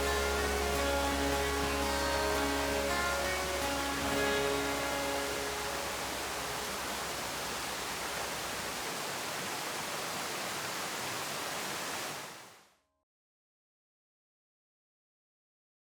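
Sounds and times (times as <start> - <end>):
steady rushing hiss: 0.0 - 12.6.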